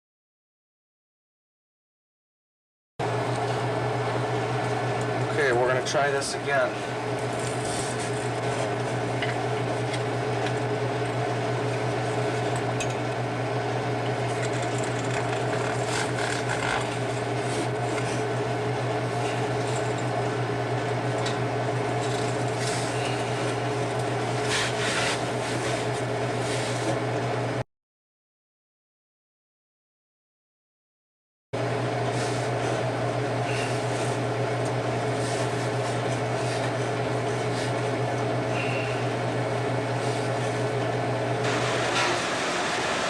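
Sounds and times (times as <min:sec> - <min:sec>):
steady machine hum: 0:03.0 - 0:27.6, 0:31.6 - 0:43.0.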